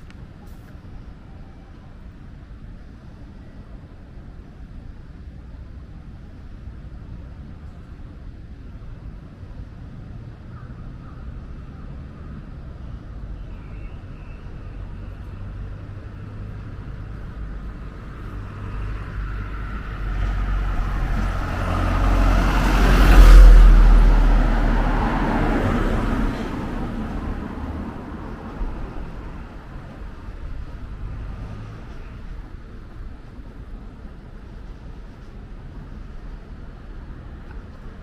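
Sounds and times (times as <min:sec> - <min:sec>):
low traffic rumble: 0:00.0 - 0:38.0
vehicle passing close by: 0:15.5 - 0:33.2.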